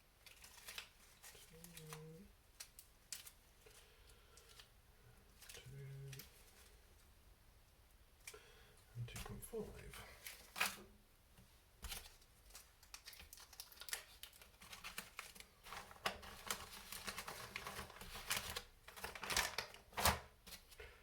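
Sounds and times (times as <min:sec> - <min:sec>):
parts bags crinkling: 0:00.2 - 0:04.7, 0:11.9 - 0:20.8.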